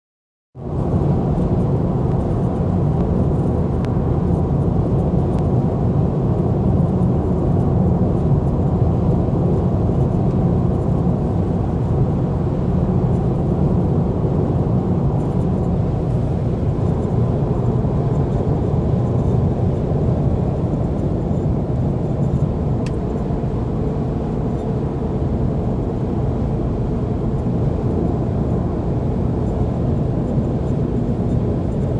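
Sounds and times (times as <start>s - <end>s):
car engine running: 0.6s - 31.9s.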